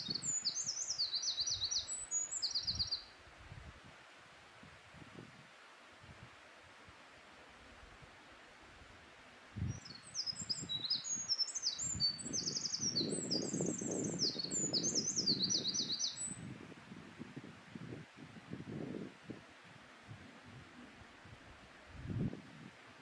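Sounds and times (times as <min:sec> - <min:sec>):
wren singing rapid trills: 0:00.0 - 0:03.0, 0:09.8 - 0:16.4.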